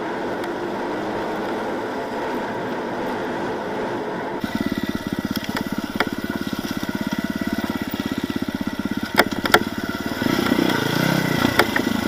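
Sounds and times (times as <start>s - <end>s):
vehicle engine running: 0.0s - 12.0s
sharp knocks: 9.0s - 9.7s.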